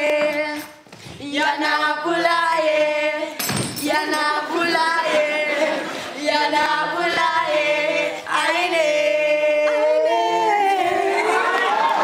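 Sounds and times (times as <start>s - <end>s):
voices singing a chant: 0.0s - 12.0s.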